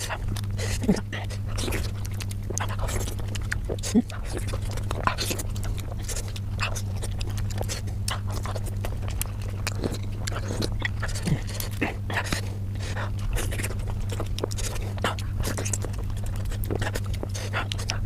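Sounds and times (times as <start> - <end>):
chewing and mouth smacking: 0.0 - 18.0
steady low hum: 0.0 - 18.0.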